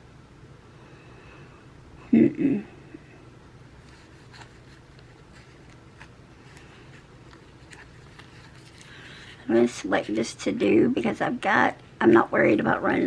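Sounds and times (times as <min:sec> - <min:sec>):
low room hum: 0:00.0 - 0:13.0
paper rustling: 0:03.8 - 0:09.4.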